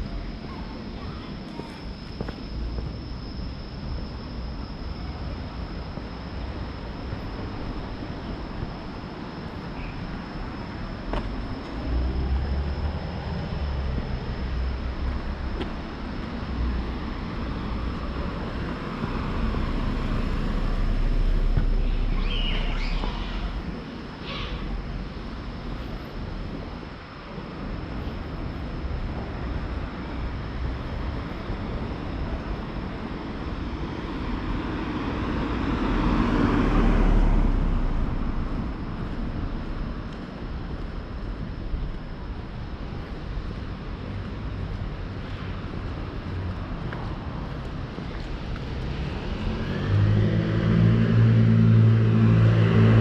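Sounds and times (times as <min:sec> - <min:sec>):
vehicles passing by: 0:10.7 - 0:53.0.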